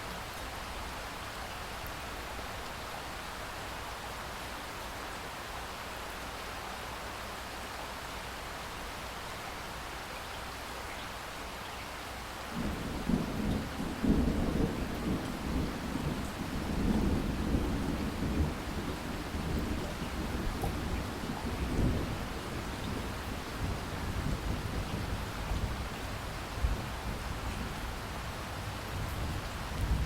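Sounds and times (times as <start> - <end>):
steady rain falling: 0.0 - 30.0
thunder rumbling: 12.6 - 30.0.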